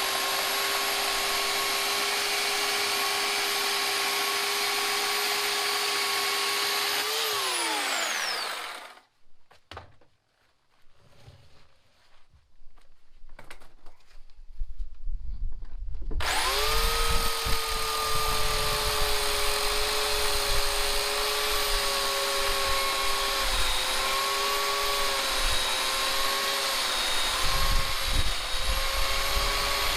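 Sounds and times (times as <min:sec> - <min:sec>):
electric chainsaw whine: 0:00.0 - 0:09.0, 0:16.2 - 0:29.9.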